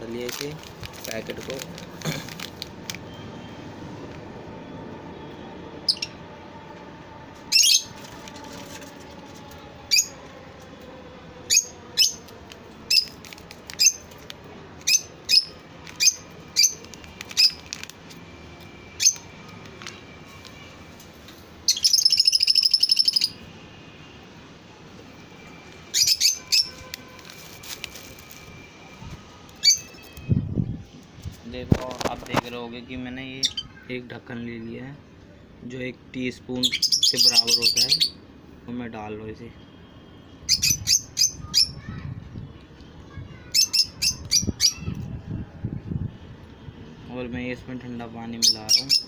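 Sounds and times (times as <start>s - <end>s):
lovebirds chirping: 7.5s - 8.0s, 14.8s - 17.7s, 25.8s - 26.9s, 36.5s - 38.2s, 43.4s - 45.4s, 48.4s - 49.0s.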